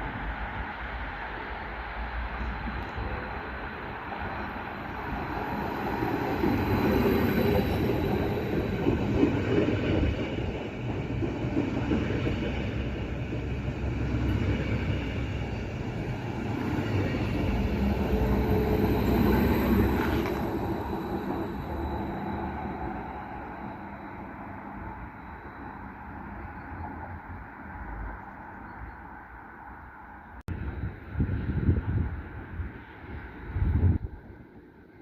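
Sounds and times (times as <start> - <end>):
train rumbling: 0.0 - 35.0
wheels squealing: 12.0 - 27.0.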